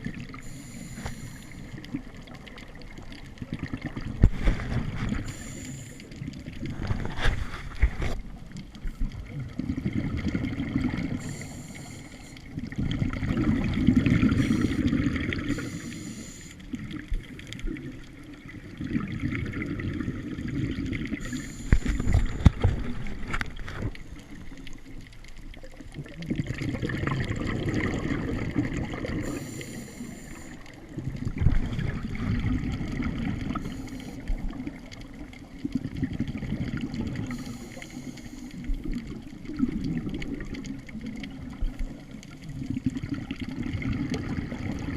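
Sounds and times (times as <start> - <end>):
bubbles gurgling underwater: 0.0 - 44.9
regulator hiss: 0.4 - 1.8, 5.1 - 6.2, 11.2 - 12.5, 14.3 - 16.7, 21.2 - 22.4, 29.2 - 30.7, 33.5 - 34.4, 37.2 - 38.7.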